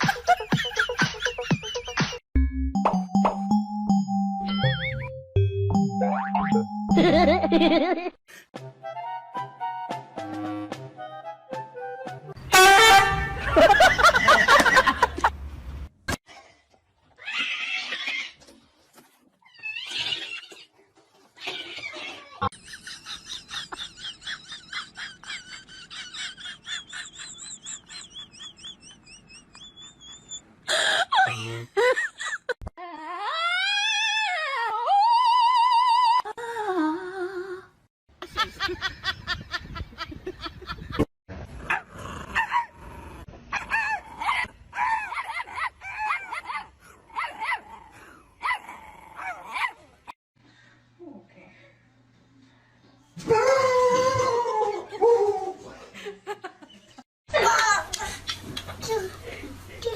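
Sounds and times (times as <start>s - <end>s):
dog yelping: 43.5s - 47.8s.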